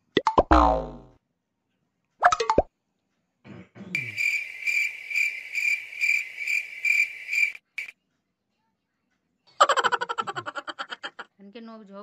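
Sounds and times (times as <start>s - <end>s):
cricket chirping: 4.0s - 7.9s.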